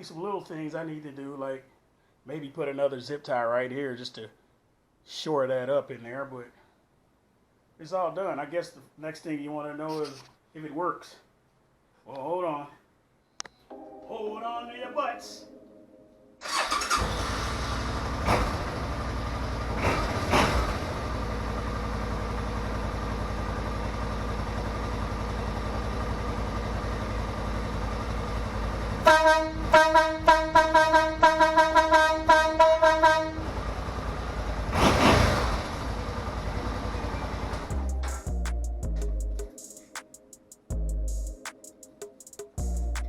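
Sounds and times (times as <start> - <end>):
deep air horn blasts: 29.0 - 33.6.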